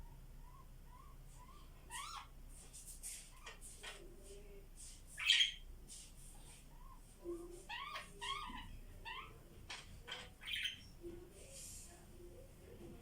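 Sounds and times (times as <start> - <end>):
budgie squawking: 0.0 - 2.4, 5.2 - 5.6, 6.7 - 9.4, 10.4 - 10.8
budgie chirping: 10.4 - 10.9.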